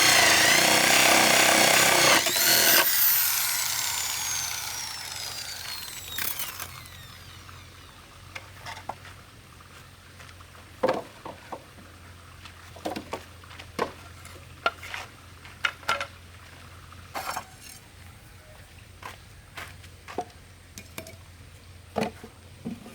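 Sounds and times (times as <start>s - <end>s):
power tool spinning down: 0.0s - 8.1s.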